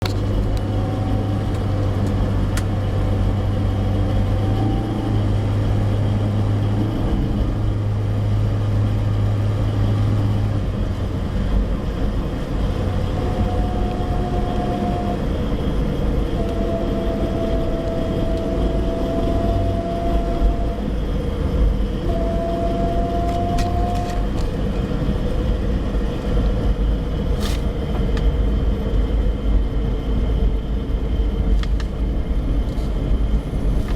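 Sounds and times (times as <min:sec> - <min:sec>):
road and engine rumble: 0:00.0 - 0:33.9
humming note: 0:12.8 - 0:21.0, 0:22.0 - 0:25.7.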